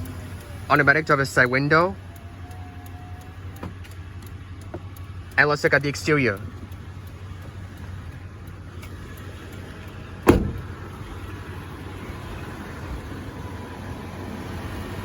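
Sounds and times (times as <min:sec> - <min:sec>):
truck engine idling: 0:00.0 - 0:15.0
truck door shutting: 0:10.1 - 0:11.0.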